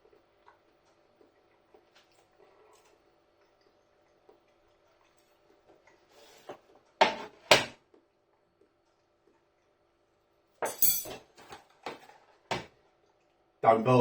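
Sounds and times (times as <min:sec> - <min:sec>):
cutlery clinking against a dish: 0:10.6 - 0:12.0.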